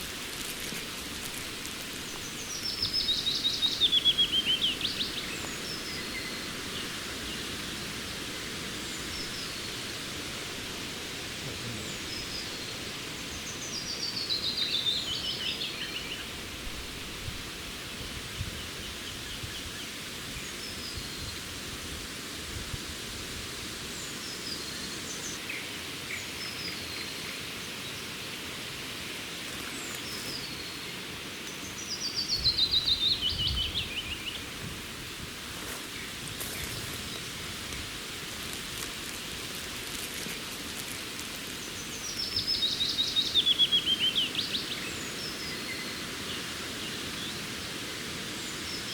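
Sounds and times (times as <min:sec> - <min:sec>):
songbirds singing: 0:00.0 - 0:17.2, 0:29.3 - 0:48.9
background hiss: 0:00.0 - 0:48.9.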